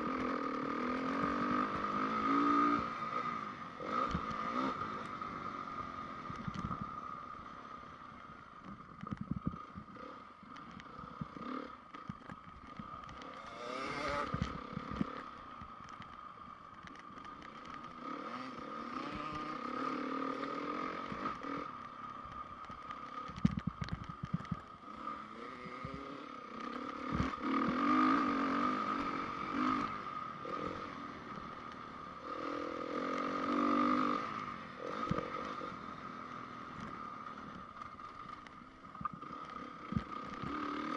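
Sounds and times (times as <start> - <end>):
motocross engine revving: 13.2 - 15.2.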